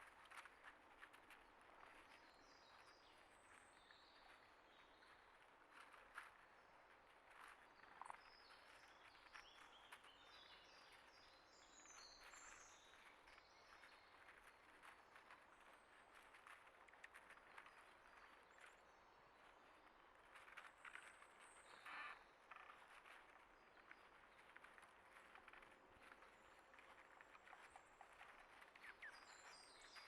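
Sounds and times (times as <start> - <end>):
soft clicks and rustles: 0.0 - 30.0
small birds chirping: 17.1 - 30.0.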